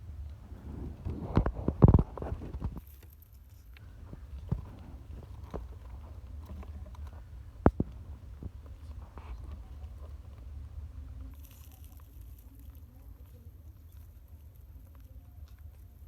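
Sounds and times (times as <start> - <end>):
low steady rumble: 0.0 - 2.8, 3.8 - 16.0
soft clicks and taps of beaks: 3.7 - 11.9.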